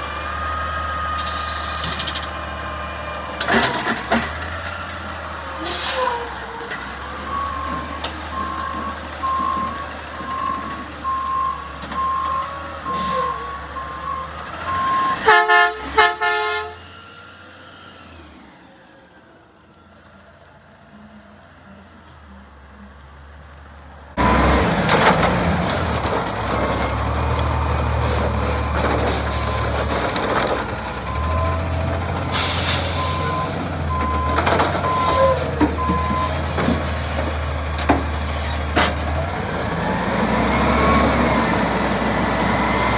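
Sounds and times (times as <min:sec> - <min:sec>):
garbage truck engine running: 0:00.0 - 0:19.9, 0:24.1 - 0:42.9
backup alarm beeping: 0:07.3 - 0:15.3.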